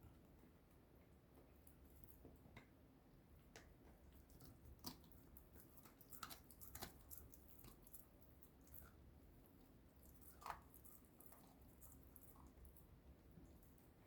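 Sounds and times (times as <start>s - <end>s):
dog gnawing on chew: 4.1s - 13.8s.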